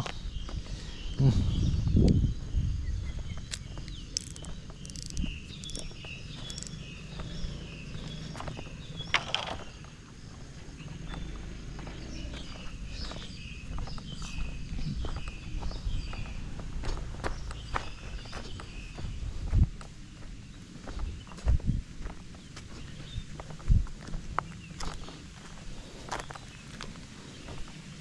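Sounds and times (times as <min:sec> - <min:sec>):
footsteps crunching outdoors: 0:00.0 - 0:28.0
wind rumble: 0:00.0 - 0:28.0
handling noise: 0:03.4 - 0:09.8.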